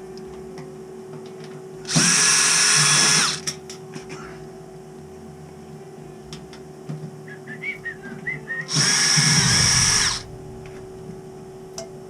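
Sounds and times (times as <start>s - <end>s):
pump whine: 1.8s - 3.6s, 7.3s - 11.8s
cordless drill running: 1.9s - 3.5s, 8.7s - 10.3s.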